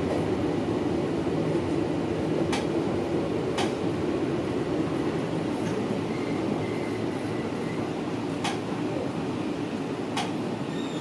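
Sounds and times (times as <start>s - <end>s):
train wheels rumbling on rail: 0.0s - 11.0s
thin wheel squeal: 10.7s - 11.0s.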